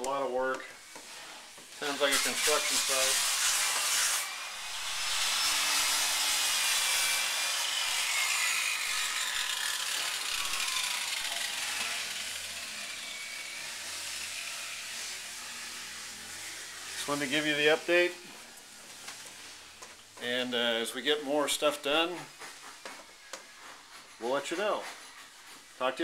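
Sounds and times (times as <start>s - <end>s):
scraping and sanding wood: 0.9s - 20.3s, 21.5s - 26.0s.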